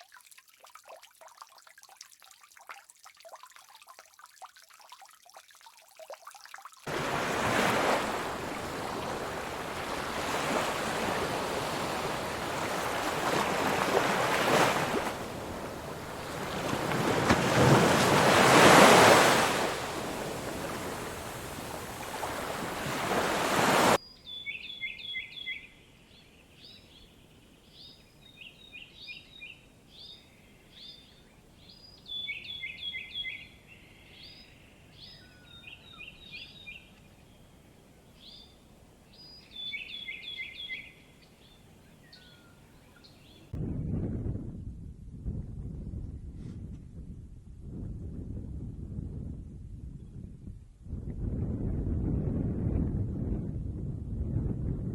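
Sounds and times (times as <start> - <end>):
surf washing in: 6.9 - 24.0.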